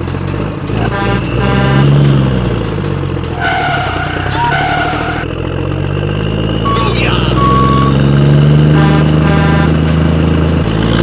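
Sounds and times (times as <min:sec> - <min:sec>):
truck engine running: 0:00.0 - 0:11.0
horn-like tone: 0:00.9 - 0:02.0, 0:03.4 - 0:05.2, 0:06.7 - 0:08.1, 0:08.7 - 0:09.8.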